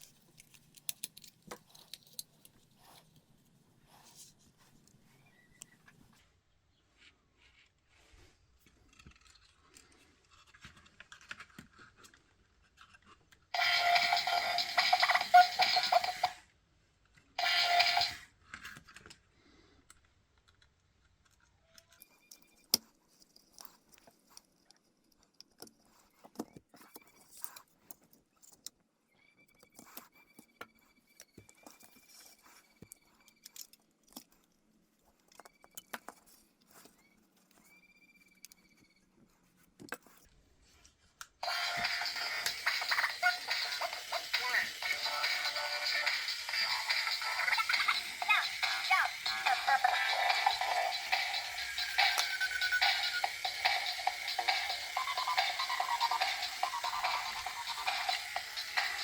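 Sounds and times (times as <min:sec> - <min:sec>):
plastic and metal parts clicking: 0:00.0 - 0:02.8
loud electronic sound bursts: 0:13.6 - 0:16.4, 0:41.4 - 0:59.0.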